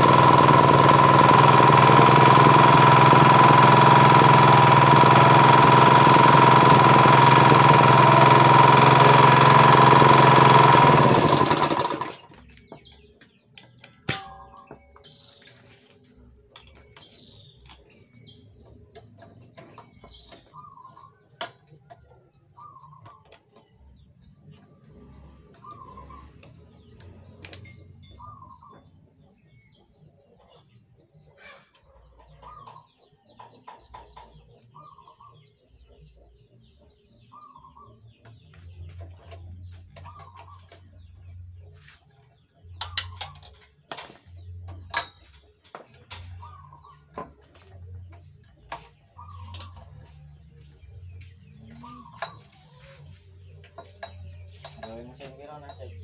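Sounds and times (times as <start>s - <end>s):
bird calling: 51.5s - 53.2s.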